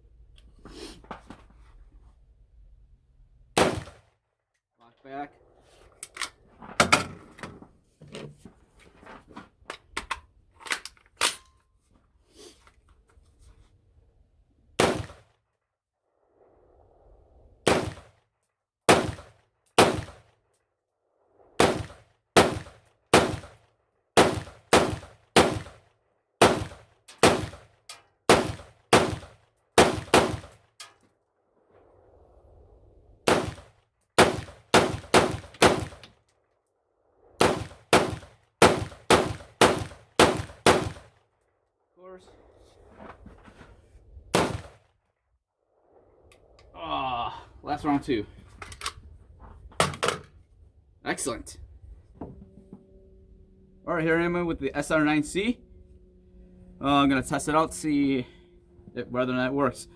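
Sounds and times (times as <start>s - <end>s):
pistol gunshots: 3.6s - 4.0s, 14.8s - 15.2s, 17.7s - 18.1s, 18.9s - 20.2s, 21.6s - 23.6s, 24.2s - 25.8s, 26.4s - 27.7s, 28.3s - 30.6s, 33.3s - 36.1s, 37.4s - 41.1s, 44.3s - 44.8s.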